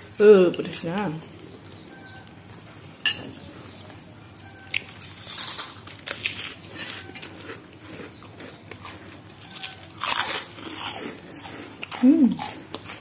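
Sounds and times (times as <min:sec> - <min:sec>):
person chewing: 0:03.8 - 0:13.0.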